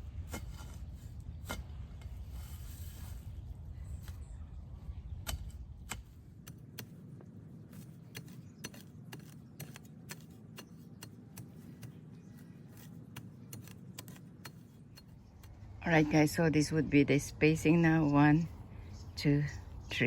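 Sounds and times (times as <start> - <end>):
low background hum: 0.0 - 20.0
shovel digging into soil: 0.2 - 3.3, 5.3 - 16.1.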